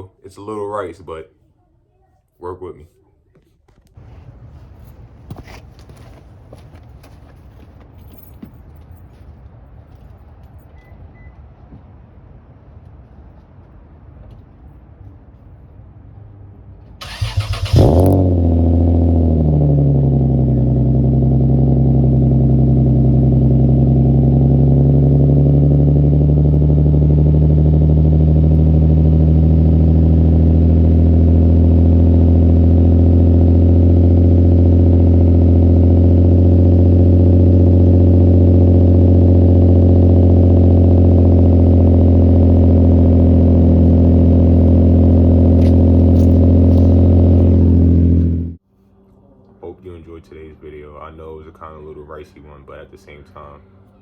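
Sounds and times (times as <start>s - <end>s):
starter motor cranking: 17.0s - 18.3s
car engine revving and idling: 17.0s - 48.6s.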